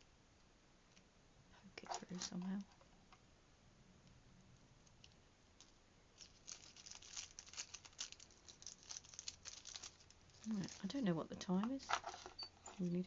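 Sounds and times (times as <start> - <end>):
beads clicking and rustling: 4.8 - 13.0.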